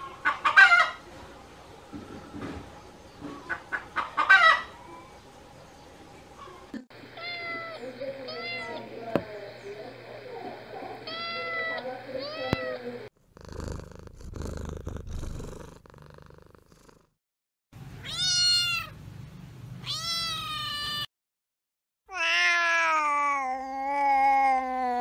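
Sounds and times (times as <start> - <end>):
cat meowing: 7.2 - 8.8, 11.1 - 12.8, 18.0 - 19.0, 19.8 - 21.1, 22.1 - 25.0.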